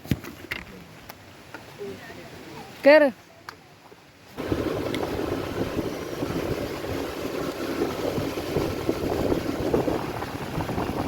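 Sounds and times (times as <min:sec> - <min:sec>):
motorbike vehicle noise: 0:04.4 - 0:11.0
wind buffeting microphone: 0:04.4 - 0:11.0.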